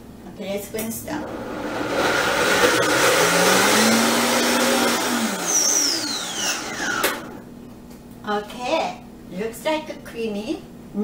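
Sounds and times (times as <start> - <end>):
blender motor running: 1.2 - 7.4.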